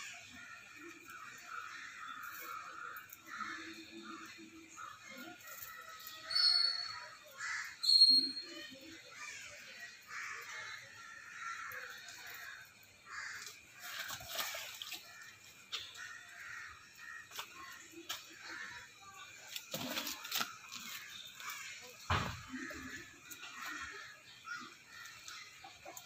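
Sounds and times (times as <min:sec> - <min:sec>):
faint scattered bird calls: 0:00.0 - 0:26.0
loud short high bird calls: 0:06.1 - 0:09.0.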